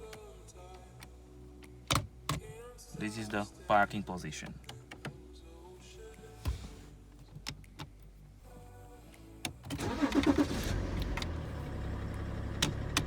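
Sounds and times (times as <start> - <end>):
starter cranking: 9.7 - 11.4
car engine idling: 9.8 - 13.0.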